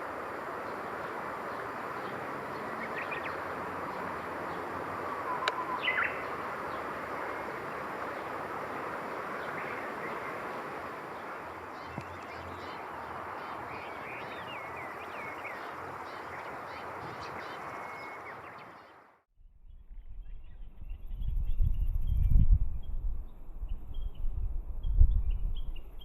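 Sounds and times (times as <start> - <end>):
steady background hiss: 0.0 - 19.0
bird chirps: 4.5 - 7.6, 11.7 - 19.0.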